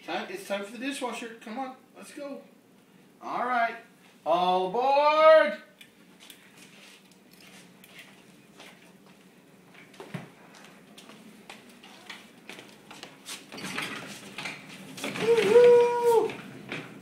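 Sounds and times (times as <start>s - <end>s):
dishwasher wheeled across floor: 11.8s - 17.0s.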